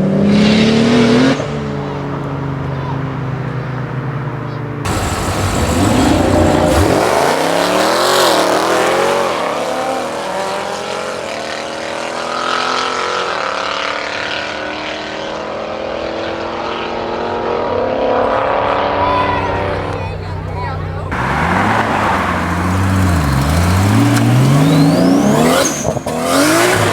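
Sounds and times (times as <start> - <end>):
car engine accelerating through gears: 0.0 - 26.9.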